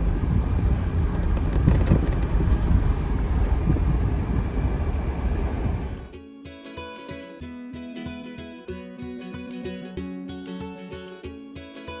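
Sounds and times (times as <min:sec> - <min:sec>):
vehicle engine and road noise: 0:00.0 - 0:06.1.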